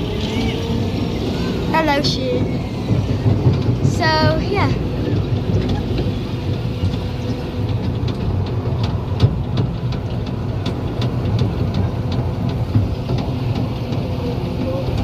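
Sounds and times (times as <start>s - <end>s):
diesel locomotive rumbling: 0.0s - 15.0s
wheels clicking over track: 0.0s - 15.0s.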